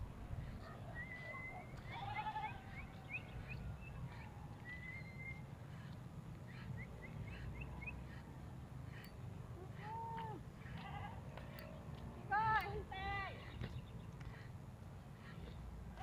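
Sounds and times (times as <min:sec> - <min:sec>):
bird chirps and whistle: 0:00.9 - 0:05.5.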